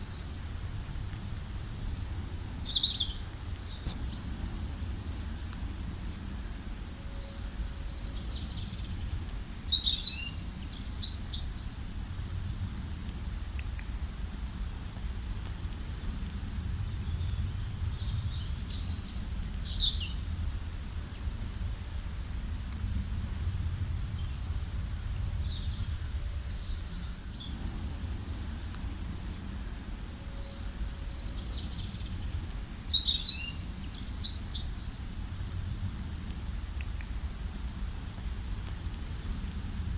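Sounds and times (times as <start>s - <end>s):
low steady rumble: 0.0s - 39.9s
songbirds chirping: 1.3s - 12.1s, 15.6s - 35.3s.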